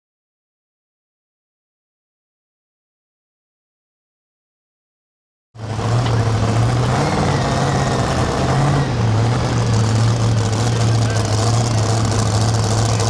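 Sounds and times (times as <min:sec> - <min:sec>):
loud truck engine idling: 0:05.6 - 0:13.0.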